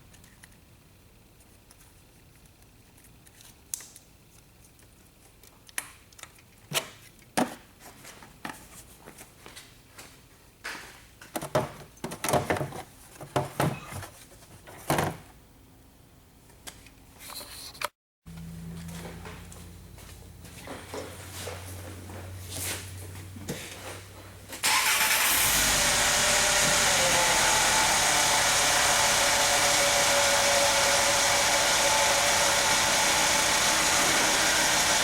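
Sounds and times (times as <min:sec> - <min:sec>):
clicks and knocks of handling: 0:10.7 - 0:15.2
steady low hum: 0:18.3 - 0:24.6.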